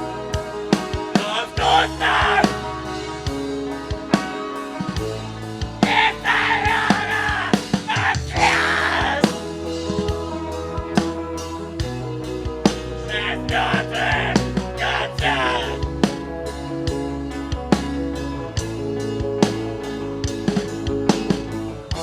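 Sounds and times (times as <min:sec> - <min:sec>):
heavy metal band playing: 0:00.0 - 0:22.0
harsh screamed vocals: 0:01.2 - 0:02.6, 0:05.8 - 0:09.3, 0:13.1 - 0:15.8.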